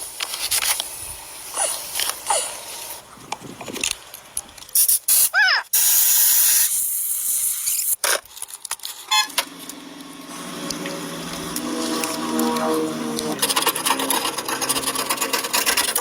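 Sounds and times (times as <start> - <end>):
loud hissing spray: 4.8 - 8.0
low steady hum: 9.6 - 16.0.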